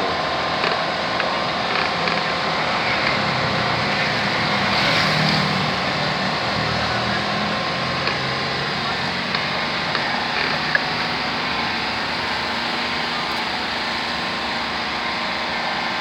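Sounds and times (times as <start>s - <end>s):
traffic noise: 0.0s - 16.0s
vehicle passing: 2.1s - 15.8s.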